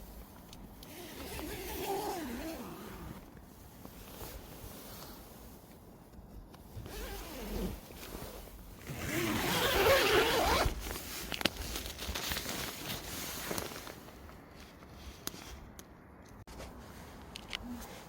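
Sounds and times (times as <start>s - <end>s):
soft rustling: 0.0s - 18.0s
zipper pulled: 0.8s - 3.3s, 6.8s - 7.8s, 8.8s - 11.0s.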